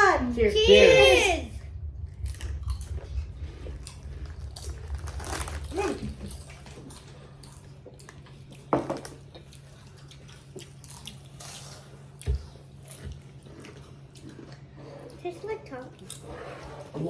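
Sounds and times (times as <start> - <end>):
people chewing chips: 2.1 - 17.0.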